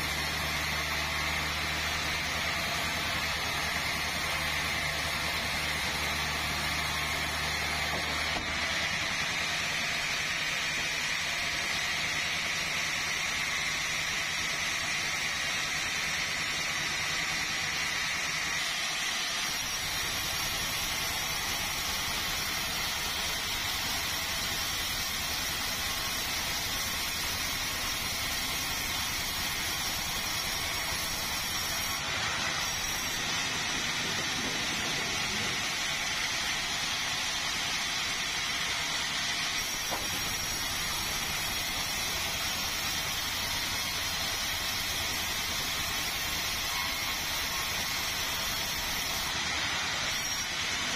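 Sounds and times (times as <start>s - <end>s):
sawmill machinery hissing and whirring: 0.0s - 50.9s
low engine hum: 32.0s - 36.2s.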